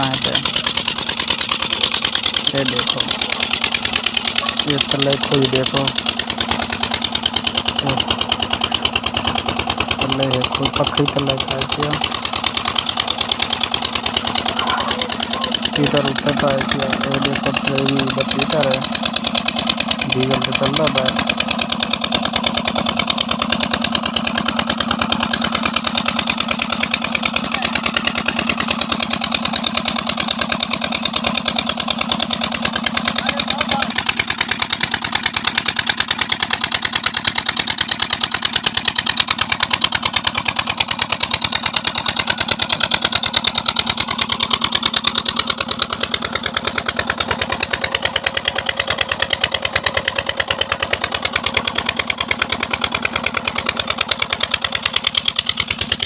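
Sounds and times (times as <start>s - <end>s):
diesel pump engine running: 0.0s - 56.0s.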